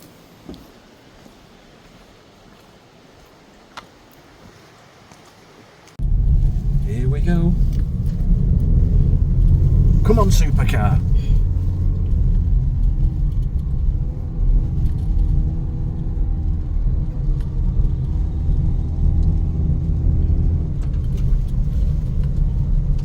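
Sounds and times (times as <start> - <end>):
road rumble: 0.0 - 23.0
car engine: 6.0 - 23.0.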